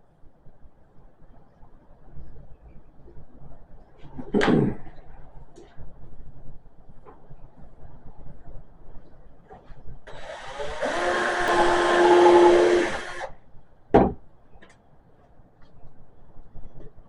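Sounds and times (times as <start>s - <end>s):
power drill whining: 10.1s - 13.3s.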